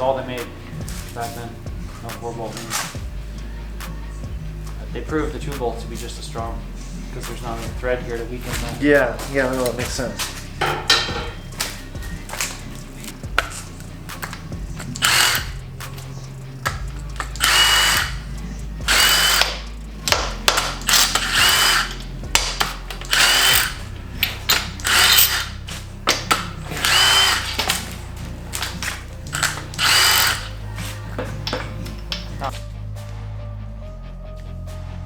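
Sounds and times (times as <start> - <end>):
power tool whining in bursts: 8.4 - 32.5.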